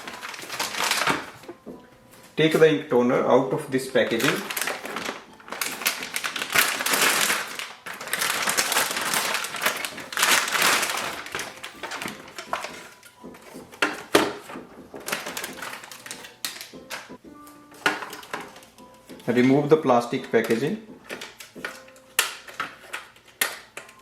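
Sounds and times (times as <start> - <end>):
plastic packaging crinkling: 0.0 - 1.5, 3.9 - 17.2.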